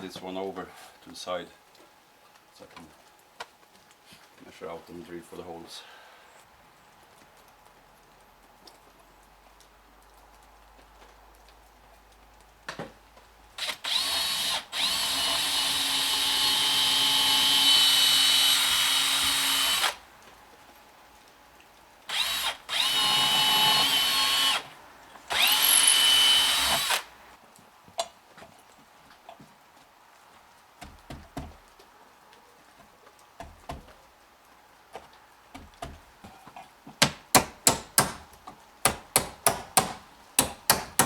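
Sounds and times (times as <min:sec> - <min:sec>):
power drill boring into wood: 0:13.6 - 0:20.0, 0:22.1 - 0:24.7, 0:25.3 - 0:27.1.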